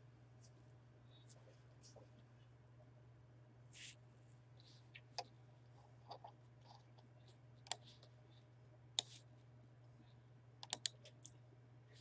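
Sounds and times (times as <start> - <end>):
low electrical hum: 0.0 - 12.0
computer clicks: 10.6 - 11.0.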